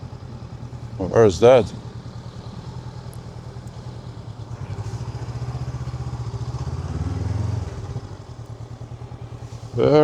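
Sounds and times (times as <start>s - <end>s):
motorcycle engine pulsing: 0.0s - 10.0s.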